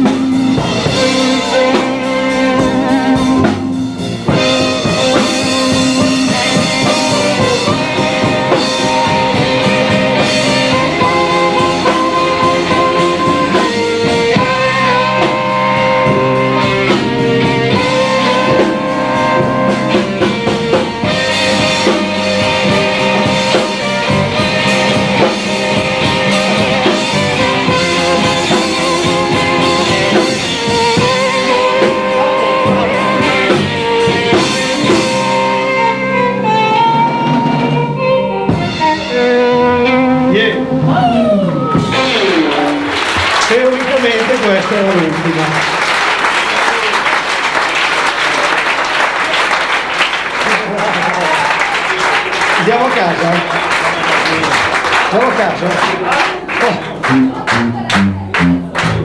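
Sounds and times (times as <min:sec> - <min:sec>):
drum kit: 0:00.0 - 0:48.2, 0:49.3 - 0:59.0
blues guitar: 0:00.0 - 0:59.0.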